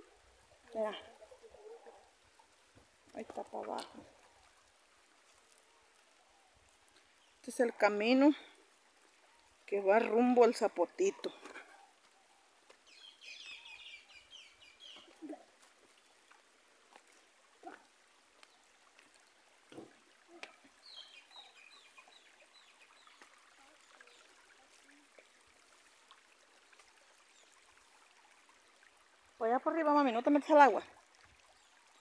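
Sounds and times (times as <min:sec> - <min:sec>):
faint bird chirping: 0:11.3 - 0:15.4, 0:20.3 - 0:25.0.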